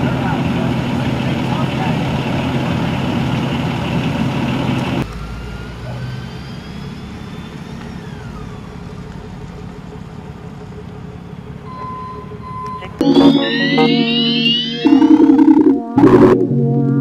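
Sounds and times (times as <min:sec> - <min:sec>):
low engine rumble: 0:00.0 - 0:05.1, 0:07.4 - 0:17.0
loud vehicle engine running: 0:00.0 - 0:13.6.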